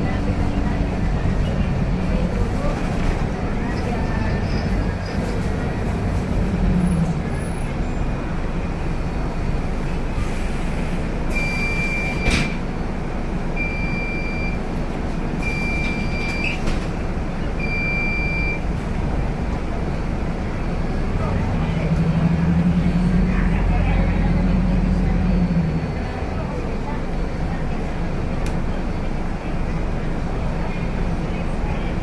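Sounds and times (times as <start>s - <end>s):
bus diesel engine and road noise: 0.0s - 32.0s.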